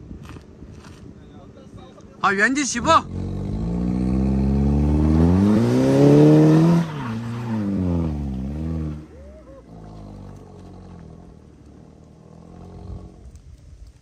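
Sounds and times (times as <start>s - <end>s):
car engine revving hard: 3.0s - 13.2s.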